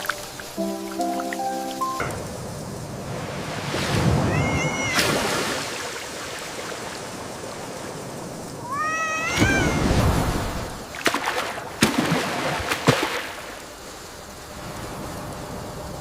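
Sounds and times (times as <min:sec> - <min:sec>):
heavy rain and rushing water: 0:00.0 - 0:16.0
cat meowing: 0:04.2 - 0:05.1, 0:08.6 - 0:09.9.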